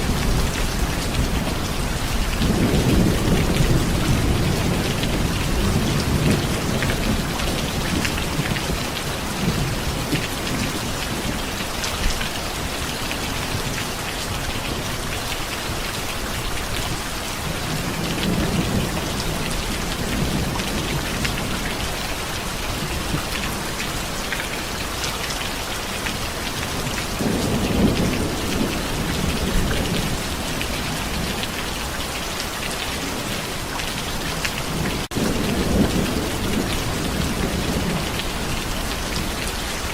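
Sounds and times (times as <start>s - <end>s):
distant thunder rolling: 0.0s - 12.2s
heavy rain: 0.0s - 39.9s.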